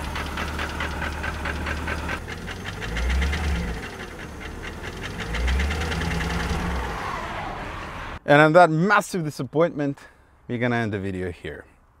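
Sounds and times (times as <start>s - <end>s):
car engine knocking: 0.0s - 6.6s.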